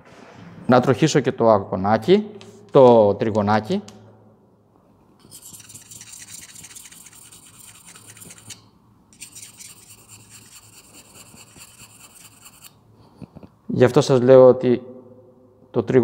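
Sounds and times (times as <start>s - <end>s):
gouge scraping on sharpening stone: 5.2s - 8.6s, 9.2s - 12.8s.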